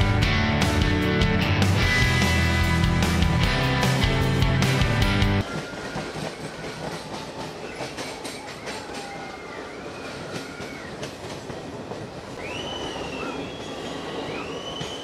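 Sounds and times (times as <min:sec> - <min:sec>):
loud music: 0:00.0 - 0:05.4
train wheels rumbling on rails: 0:01.8 - 0:15.0.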